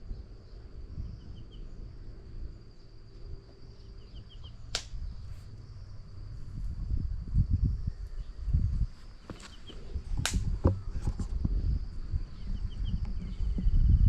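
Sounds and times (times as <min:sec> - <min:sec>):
high insect hum: 0:00.0 - 0:14.0
steady low rumble: 0:00.0 - 0:14.0
sharp click or snap: 0:04.7 - 0:05.0, 0:10.2 - 0:10.5.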